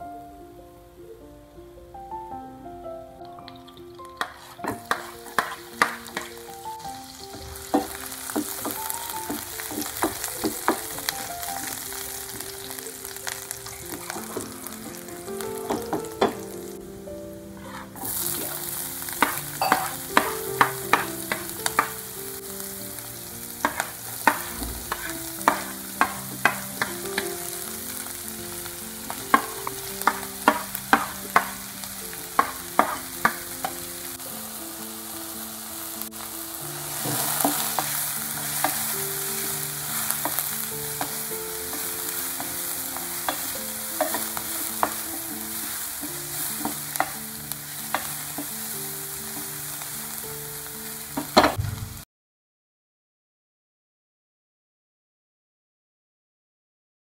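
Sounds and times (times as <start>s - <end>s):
vegetables sizzling in oil: 3.2s - 51.6s
utensil clicking against pan: 4.2s - 6.3s.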